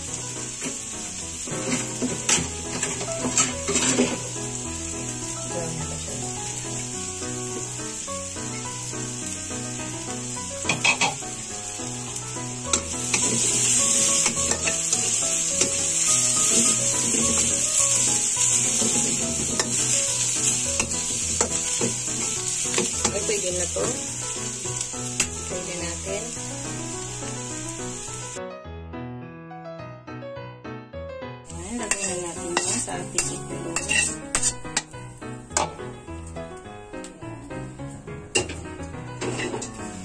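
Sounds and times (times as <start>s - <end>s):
onion and garlic sizzling in oil: 0.0s - 28.4s, 31.5s - 36.4s, 37.6s - 40.0s
spatula scraping a wok: 1.4s - 4.4s, 10.7s - 11.2s, 12.7s - 24.0s, 31.6s - 34.9s, 39.2s - 40.0s.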